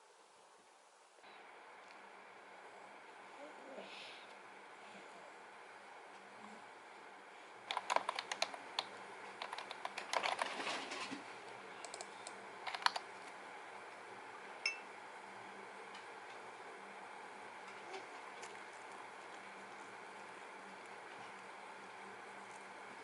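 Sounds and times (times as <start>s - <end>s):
rapid light clicks: 11.4s - 13.4s
short ringing clink: 14.6s - 14.9s.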